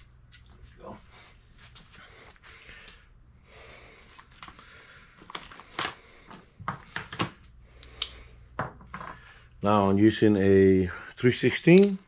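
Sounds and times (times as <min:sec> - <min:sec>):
low steady hum: 0:00.0 - 0:12.0
light clicks and knocks of tools: 0:11.4 - 0:12.0.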